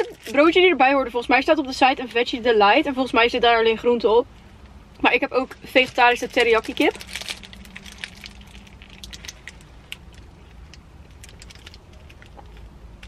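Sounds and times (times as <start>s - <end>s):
steady low hum: 0.0s - 13.0s
paper wrapper rustling: 5.7s - 12.4s
chewing sandwich: 6.9s - 13.0s.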